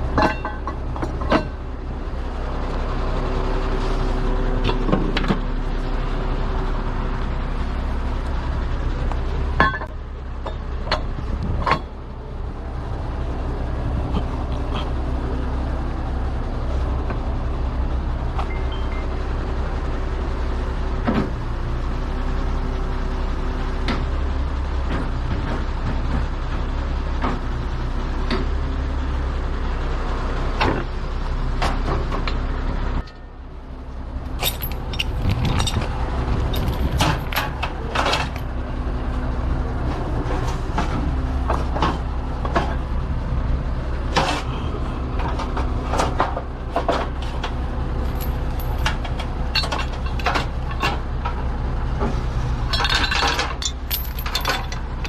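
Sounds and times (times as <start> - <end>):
rattles and clanks: 0.0 - 1.7, 9.5 - 12.1, 34.3 - 38.6, 44.0 - 55.0
heavy truck engine running: 0.0 - 55.0.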